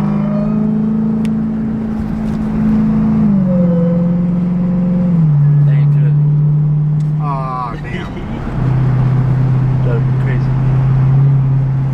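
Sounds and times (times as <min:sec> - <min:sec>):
car engine exhaust under load: 0:00.0 - 0:11.9.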